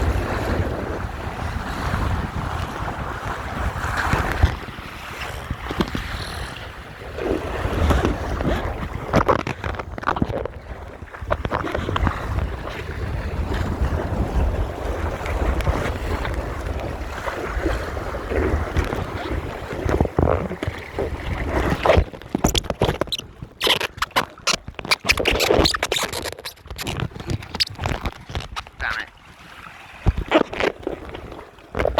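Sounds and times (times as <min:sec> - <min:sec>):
water rushing along hull: 0:00.0 - 0:31.9
wind buffeting microphone: 0:00.0 - 0:31.9
sharp short splashes: 0:21.4 - 0:31.9.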